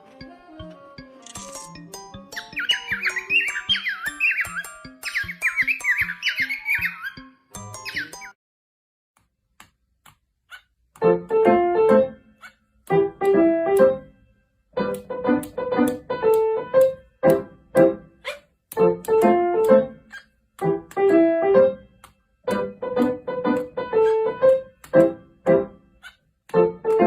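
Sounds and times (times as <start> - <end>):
piano melodic phrase: 11.0 - 12.3, 12.9 - 18.1, 18.8 - 20.0, 20.6 - 25.8, 26.5 - 27.0.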